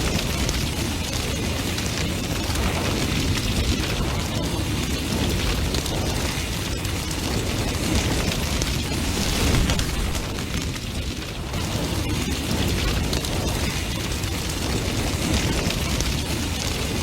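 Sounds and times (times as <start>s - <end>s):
burning wood crackling and popping: 0.0s - 17.0s
low rumble of flames: 0.0s - 17.0s.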